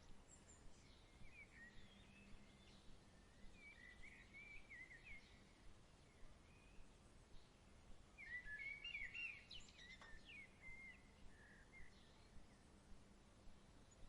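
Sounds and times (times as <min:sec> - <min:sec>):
soft background hiss: 0:00.0 - 0:14.0
small click: 0:09.9 - 0:10.2.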